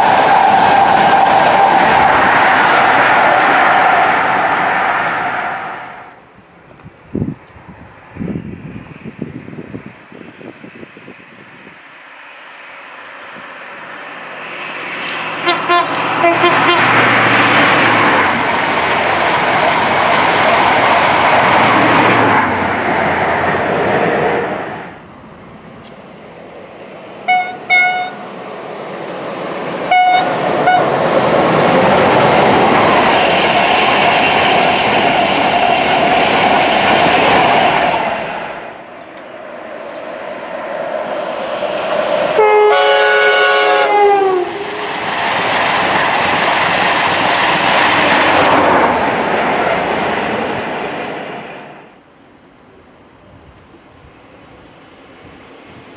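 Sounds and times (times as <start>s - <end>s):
trains passing at speed: 0.0s - 55.9s
train horn toots: 15.4s - 17.2s, 27.2s - 28.2s, 29.9s - 31.0s, 42.3s - 44.8s.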